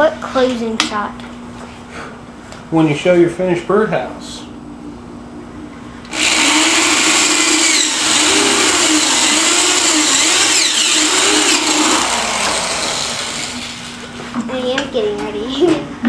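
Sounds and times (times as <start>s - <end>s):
electric power tool motor running: 6.1s - 14.1s.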